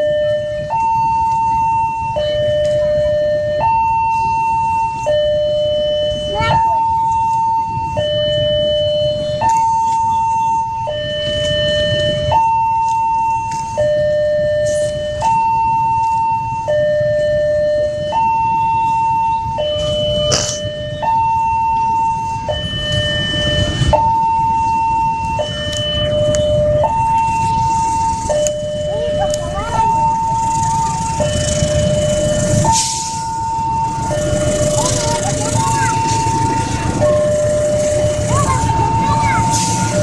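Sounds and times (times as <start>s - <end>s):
level crossing two-tone alarm: 0.0s - 40.0s
low rumble: 19.6s - 40.0s.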